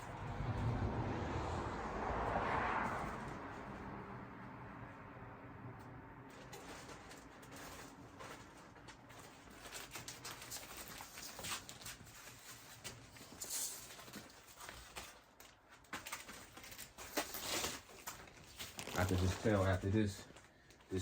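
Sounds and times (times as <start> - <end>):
oil popping and crackling: 16.1 - 19.4.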